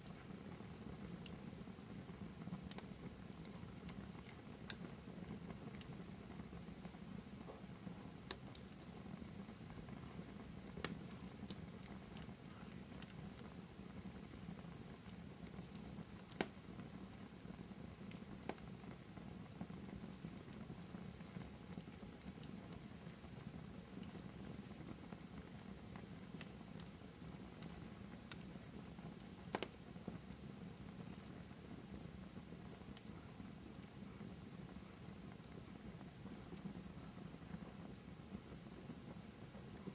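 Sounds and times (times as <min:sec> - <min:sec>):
low background noise: 0:00.0 - 0:39.9
wood fire crackling: 0:00.0 - 0:39.9
sharp fire pops: 0:29.4 - 0:29.8.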